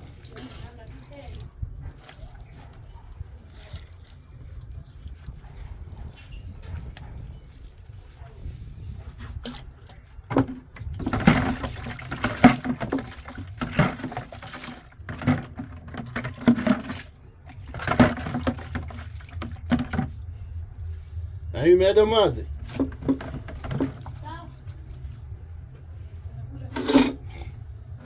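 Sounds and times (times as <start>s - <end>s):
water splashing and sloshing: 0.0s - 28.0s
low steady hum: 7.6s - 28.0s.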